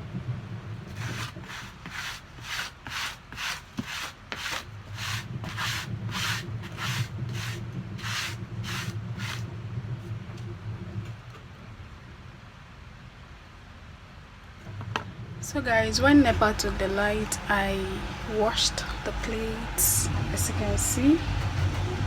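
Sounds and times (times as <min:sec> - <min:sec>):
quick rubbing strokes: 0:00.9 - 0:09.4
steady low hum: 0:14.6 - 0:22.0.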